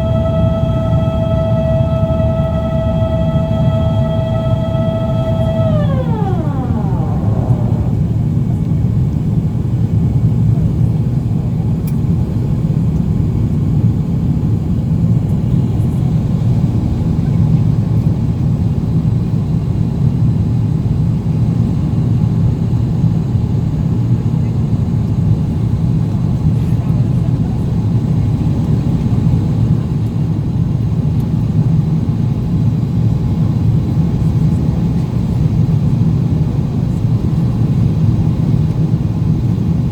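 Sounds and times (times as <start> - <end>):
whine falling in pitch: 0.0 - 8.6
airplane cabin rumble: 0.0 - 8.8.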